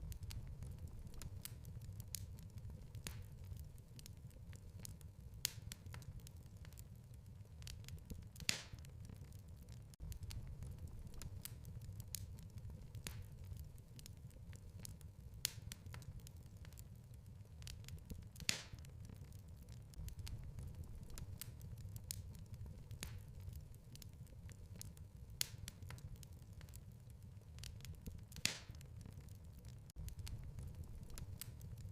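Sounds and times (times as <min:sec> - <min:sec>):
low steady rumble: 0:00.0 - 0:03.9, 0:10.0 - 0:14.0, 0:18.9 - 0:25.3, 0:30.0 - 0:31.9
sharp fire pops: 0:00.0 - 0:06.9, 0:07.6 - 0:31.9
wood fire crackling: 0:00.0 - 0:31.9.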